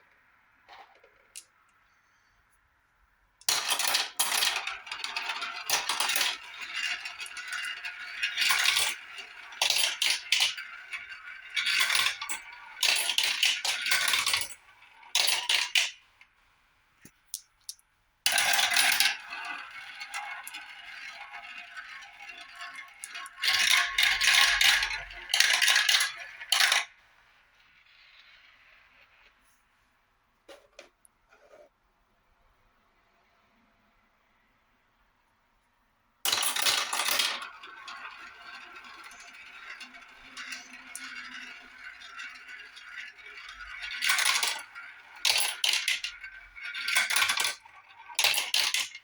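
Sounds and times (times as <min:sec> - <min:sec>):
marbles clattering down a run: 0:03.4 - 0:16.0, 0:18.3 - 0:27.0, 0:36.3 - 0:49.0.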